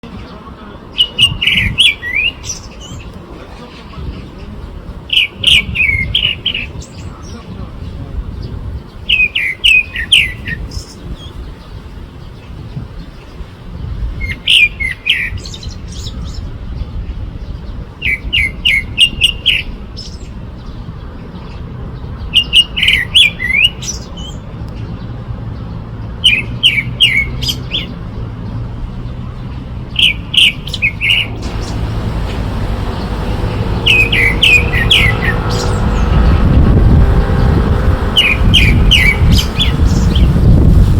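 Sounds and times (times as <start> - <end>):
songbird singing: 0.0 - 40.8
low rumble: 30.8 - 40.9.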